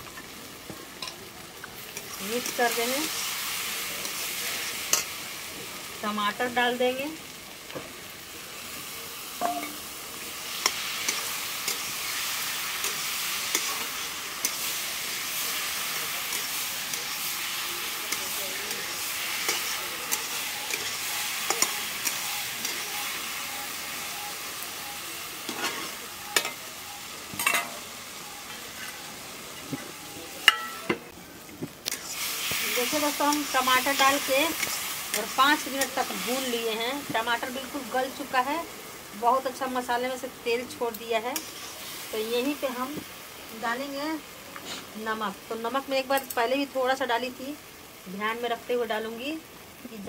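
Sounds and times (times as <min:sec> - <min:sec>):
food sizzling in a pan: 0:00.0 - 0:50.0
metal spatula scraping pan: 0:25.5 - 0:26.6.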